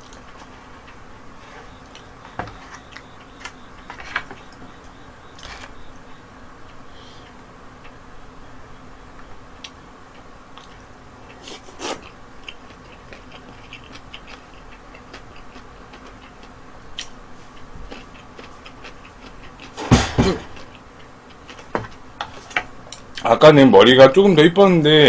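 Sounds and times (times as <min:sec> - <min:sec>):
steady low hum: 0:00.0 - 0:25.0
person chewing food: 0:09.6 - 0:19.8, 0:20.5 - 0:23.2.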